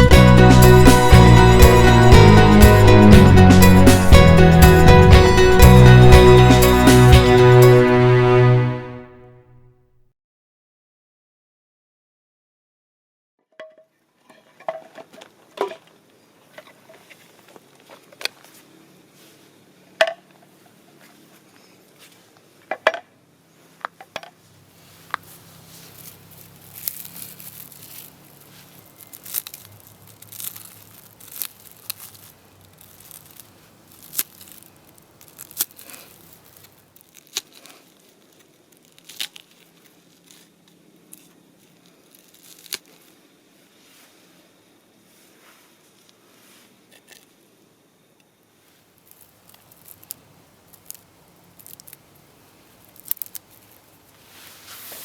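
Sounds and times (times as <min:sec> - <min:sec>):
crinkling and rustling handling: 0:23.8 - 0:43.2, 0:48.7 - 0:55.0.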